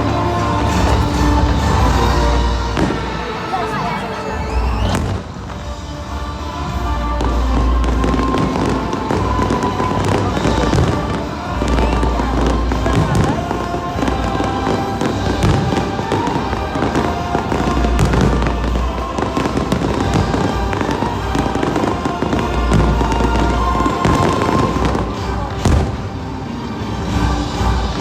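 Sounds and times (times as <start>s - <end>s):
fireworks crackling and booming: 0.0s - 28.0s
music over loudspeakers: 0.0s - 28.0s
sharp firework bang: 0.4s - 5.5s.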